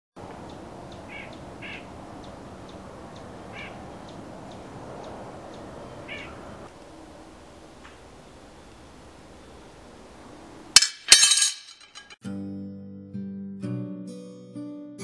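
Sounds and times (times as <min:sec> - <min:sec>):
birds calling: 0:00.2 - 0:06.7.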